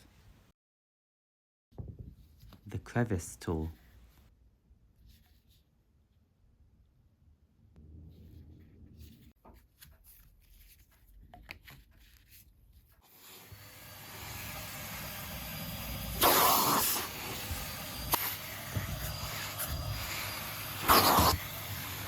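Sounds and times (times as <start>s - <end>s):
vacuum cleaner running: 13.1s - 22.0s.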